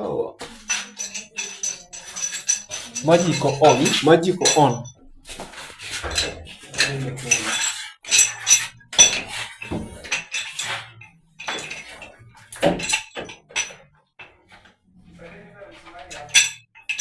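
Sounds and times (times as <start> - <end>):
metal tools clinking and clattering: 0.4 - 14.7, 15.7 - 17.0
metallic ringing: 0.6 - 5.0, 6.1 - 13.8, 16.0 - 17.0.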